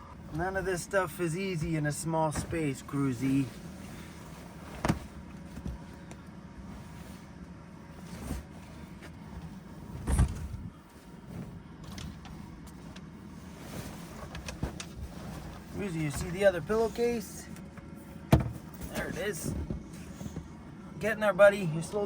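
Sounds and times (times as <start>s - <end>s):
steady low hum: 0.0s - 22.0s
bedding rustling: 0.3s - 17.4s.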